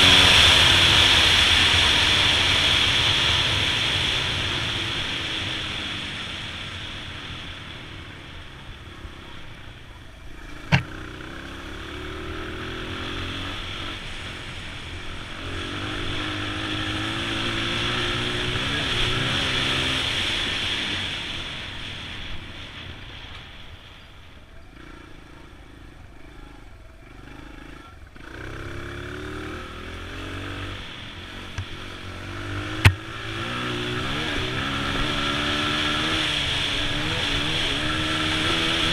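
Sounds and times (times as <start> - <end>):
dirt bike engine revving: 10.3 - 14.1, 15.4 - 20.6, 26.3 - 38.9
sharp knocks: 10.7 - 10.9, 32.8 - 33.1.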